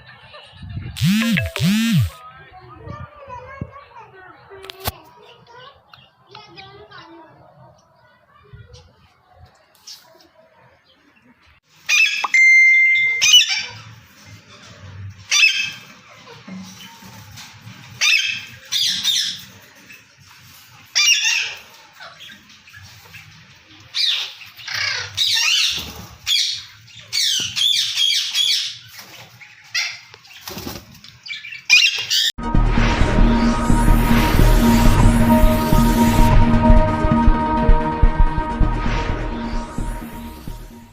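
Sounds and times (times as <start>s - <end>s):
whistled bird note: 12.2s - 13.5s.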